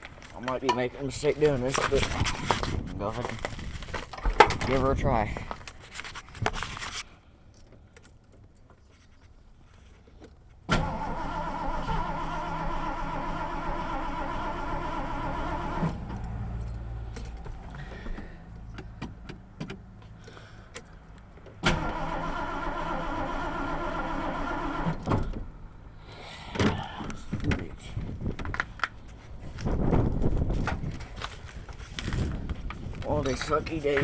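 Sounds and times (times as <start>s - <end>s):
engine cranking without starting: 10.7s - 18.3s, 21.6s - 25.4s.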